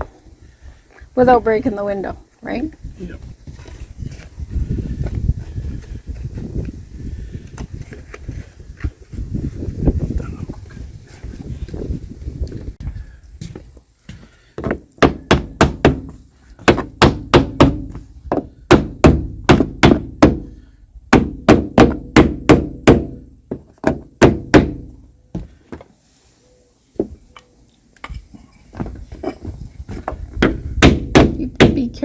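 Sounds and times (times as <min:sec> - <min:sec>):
hammer tapping wood: 0:14.6 - 0:20.4.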